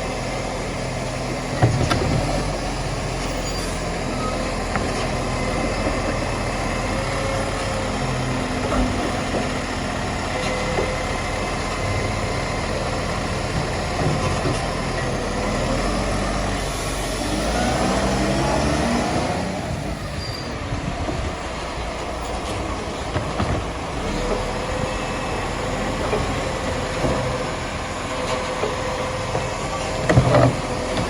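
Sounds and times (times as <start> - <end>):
garbage truck engine running: 0.0 - 31.0.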